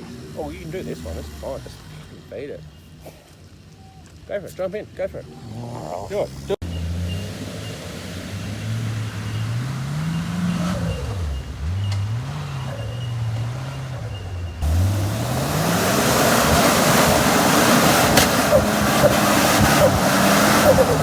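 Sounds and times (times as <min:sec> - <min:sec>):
engine revving: 0:00.0 - 0:02.8, 0:05.2 - 0:21.0
loud rushing noise: 0:14.6 - 0:21.0.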